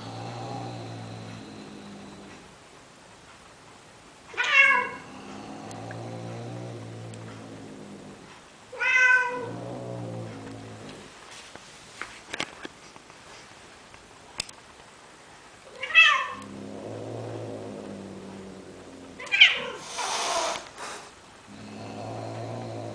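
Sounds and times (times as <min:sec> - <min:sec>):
cat meowing: 0:04.3 - 0:05.0, 0:08.8 - 0:09.6
low drawn-out cat sound: 0:04.3 - 0:11.2.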